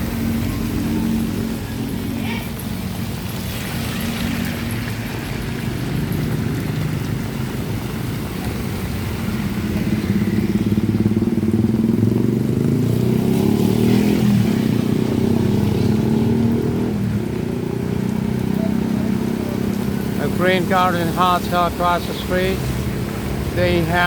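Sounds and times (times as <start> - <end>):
motorcycle engines in traffic: 0.0 - 24.0.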